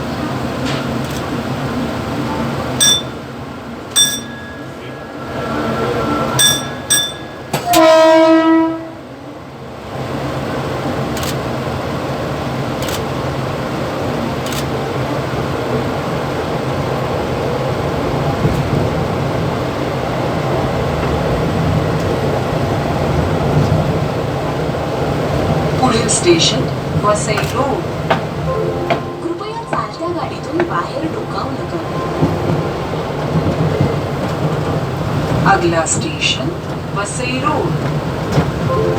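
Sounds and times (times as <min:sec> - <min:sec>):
short beeps: 0:02.8 - 0:03.2, 0:06.3 - 0:07.5.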